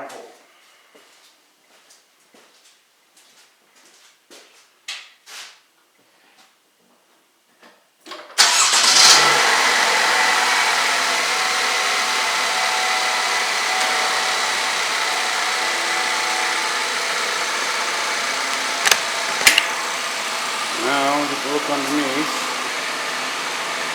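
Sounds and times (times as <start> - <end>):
car engine starting and idling: 8.4 - 23.9.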